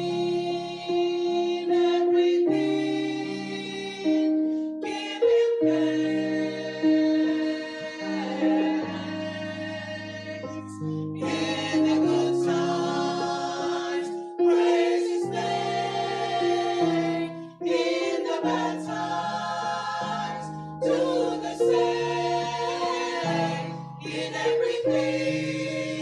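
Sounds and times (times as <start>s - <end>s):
choir singing in harmony: 0.0s - 26.0s.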